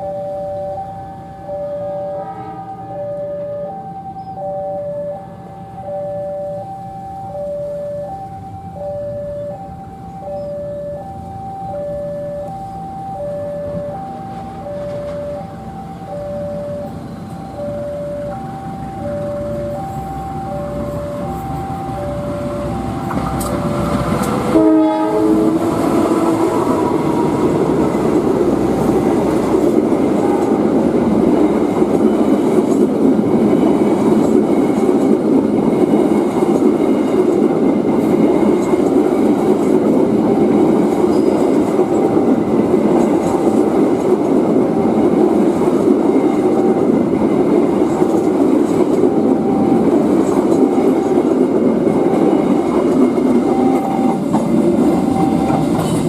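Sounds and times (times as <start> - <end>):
train rumbling past: 0.0 - 56.0
train horn blast: 1.7 - 5.7, 23.5 - 27.8
wheels clattering on rails: 13.9 - 56.0.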